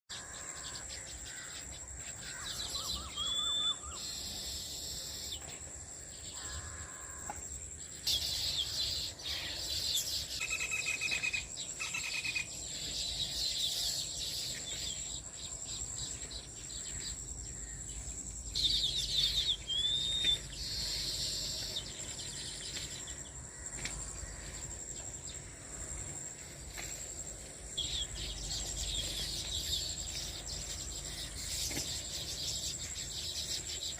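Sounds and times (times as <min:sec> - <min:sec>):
birds chattering in chirping trills: 0:00.1 - 0:33.9
high cricket drone: 0:00.1 - 0:33.9
bird whistle: 0:03.0 - 0:04.0.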